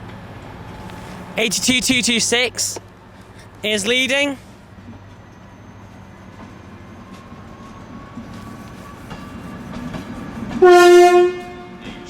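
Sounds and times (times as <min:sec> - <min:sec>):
diesel locomotive idling: 0:00.0 - 0:12.0
train horn blast: 0:10.2 - 0:12.0.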